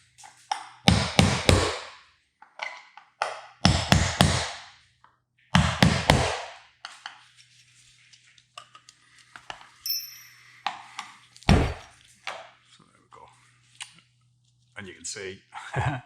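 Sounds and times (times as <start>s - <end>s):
hammer striking metal punch: 0.9s - 2.0s, 3.7s - 4.6s, 5.6s - 6.6s
brief high metallic ring: 9.8s - 10.6s
light metallic clinks: 9.8s - 10.9s.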